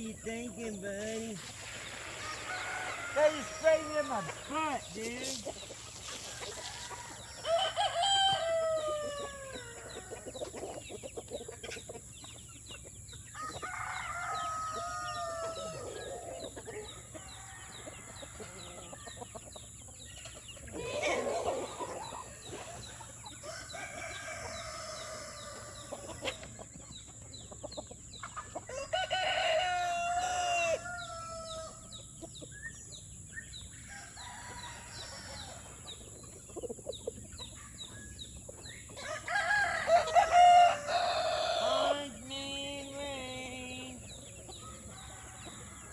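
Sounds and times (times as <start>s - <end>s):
roosters crowing: 0.0s - 11.5s, 13.1s - 26.9s, 27.6s - 32.2s, 33.6s - 45.9s
hens clucking: 0.0s - 45.9s.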